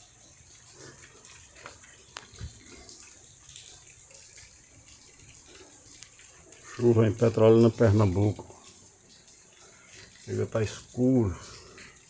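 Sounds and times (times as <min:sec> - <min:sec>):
steady rain hiss: 0:00.0 - 0:12.0
sharp drip taps: 0:00.3 - 0:12.0.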